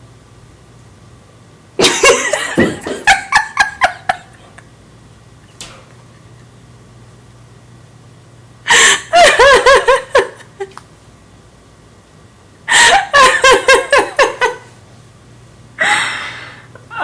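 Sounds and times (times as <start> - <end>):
person laughing hard: 1.8 - 4.6, 8.7 - 10.7, 12.7 - 14.7.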